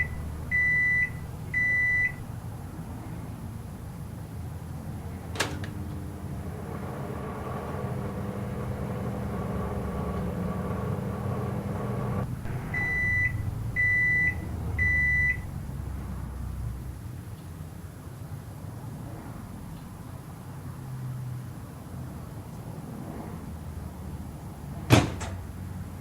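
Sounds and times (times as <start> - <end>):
high beeps: 0.0 - 2.2, 12.5 - 15.5
microwave oven humming: 0.0 - 2.7, 3.4 - 16.9
microwave click: 5.3 - 6.1, 24.9 - 25.6.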